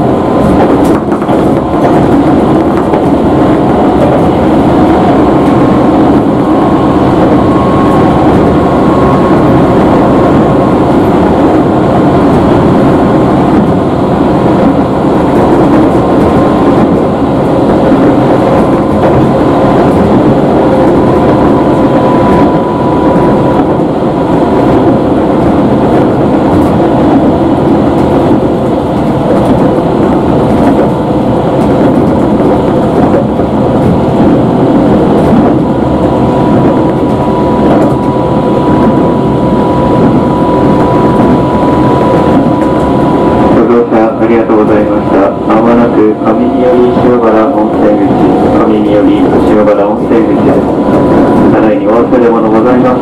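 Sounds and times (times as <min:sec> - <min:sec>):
train wheels rumbling: 0:00.0 - 0:53.0
steady high tone: 0:35.6 - 0:53.0.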